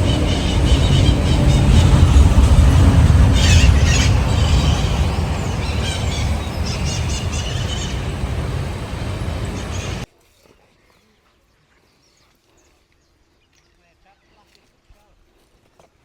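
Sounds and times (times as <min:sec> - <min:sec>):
birds chirping: 0:00.0 - 0:10.0
loud low rumbling: 0:00.0 - 0:10.0.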